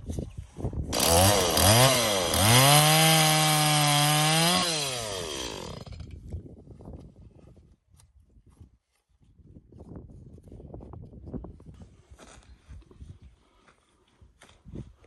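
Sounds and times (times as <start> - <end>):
chainsaw revving: 0.9 - 6.1.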